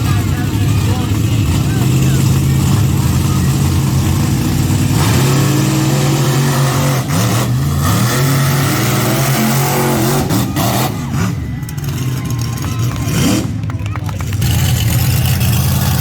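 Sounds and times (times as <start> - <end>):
large vehicle engine revving: 0.0 - 16.0.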